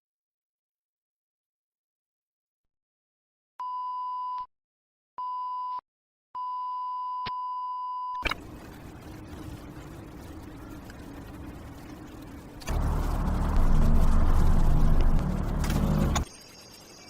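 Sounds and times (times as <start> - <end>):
low hum: 8.4 - 16.3.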